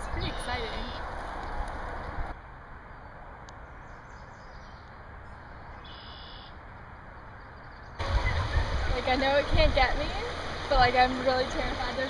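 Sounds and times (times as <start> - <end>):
faint outdoor background hiss: 0.0 - 12.0
high bird call: 5.8 - 6.6.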